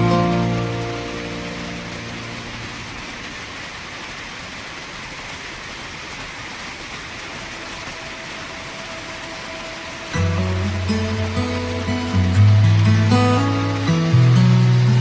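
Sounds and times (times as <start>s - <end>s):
music with sustained low notes: 0.0s - 3.2s, 8.3s - 15.0s
river water rushing over rocks: 0.0s - 15.0s.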